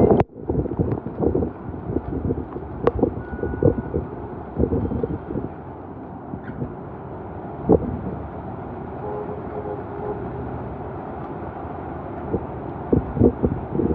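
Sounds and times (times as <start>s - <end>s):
vehicle noise: 0.0s - 13.9s
rain on street: 0.5s - 13.9s
faint steady tone: 2.9s - 6.7s.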